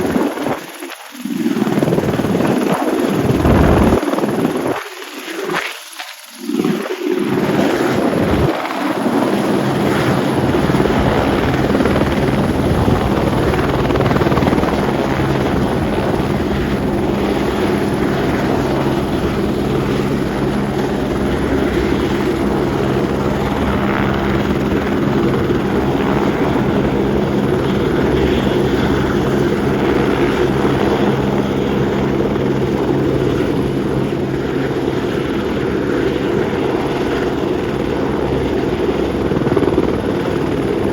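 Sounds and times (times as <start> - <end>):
helicopter rotor and engine: 0.0 - 40.9
steady hum: 2.1 - 4.7.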